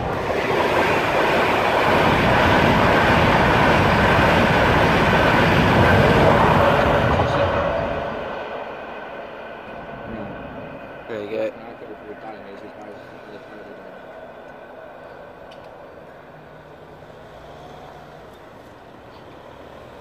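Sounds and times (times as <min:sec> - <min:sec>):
train passing at speed: 0:00.0 - 0:20.0.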